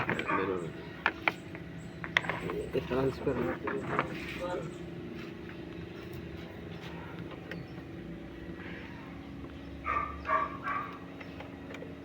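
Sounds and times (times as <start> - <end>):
low mechanical hum: 0.0 - 12.0
dog barking: 0.2 - 0.6, 9.8 - 11.0.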